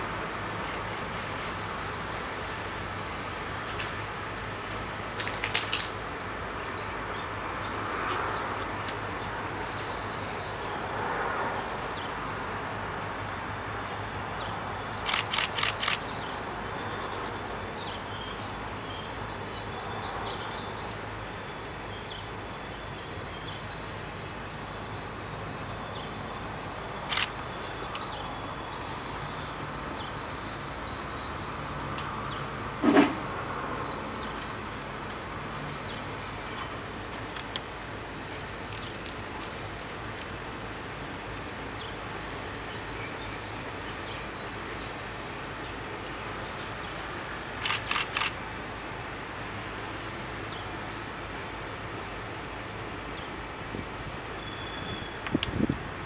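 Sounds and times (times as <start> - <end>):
train wheels rumbling on rail: 0.0 - 56.0
high thin whine: 18.4 - 43.0.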